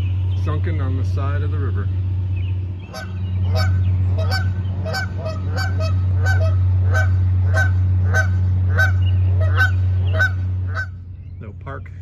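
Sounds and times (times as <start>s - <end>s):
steady low hum: 0.0s - 12.0s
geese honking: 2.8s - 11.0s.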